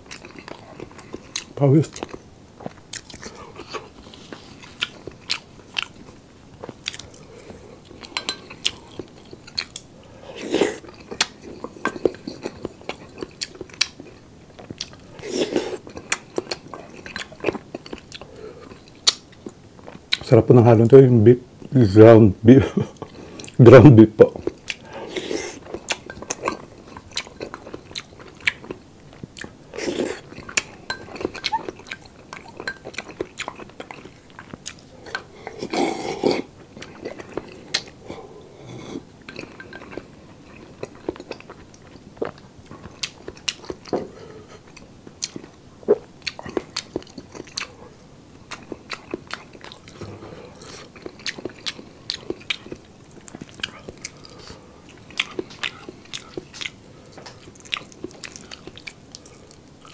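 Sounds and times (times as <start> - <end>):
chewing and wet mouth clicks: 15.8 - 20.2, 30.2 - 35.3, 50.7 - 59.9.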